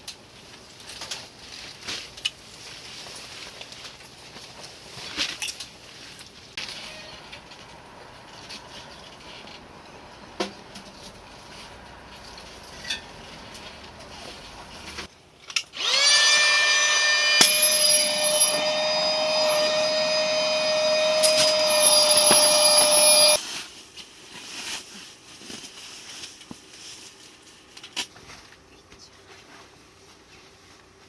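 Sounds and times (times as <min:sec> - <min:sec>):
small electric motor whirring: 0:15.7 - 0:23.4.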